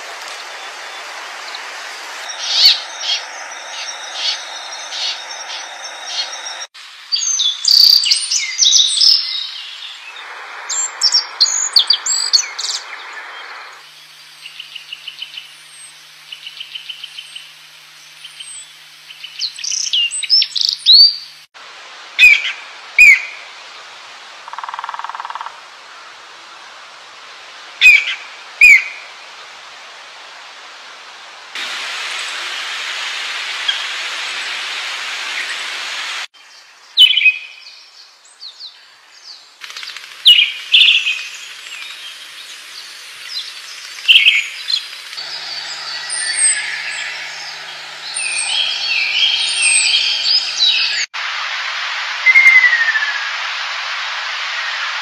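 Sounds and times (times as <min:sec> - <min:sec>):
background hiss: 0:00.0 - 0:55.0
bird chirps and trills: 0:02.2 - 0:10.1, 0:43.2 - 0:51.1
falling whistled bird call: 0:52.2 - 0:53.2.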